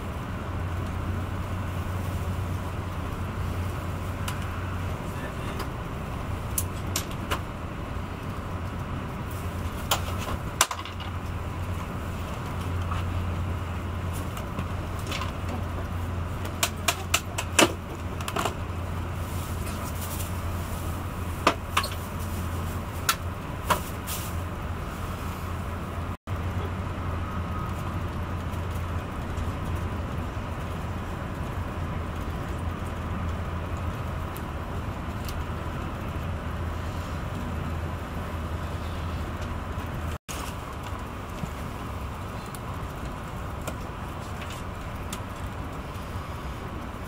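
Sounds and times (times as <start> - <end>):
train running rumble: 0.0 - 47.0
sharp clicks and knocks: 16.4 - 18.6.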